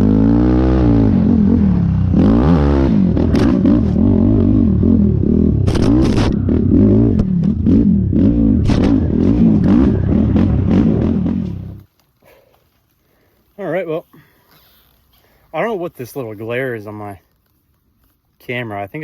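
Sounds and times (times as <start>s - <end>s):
quad engine revving: 0.0s - 11.8s
chassis knocks and clatter: 8.6s - 11.8s.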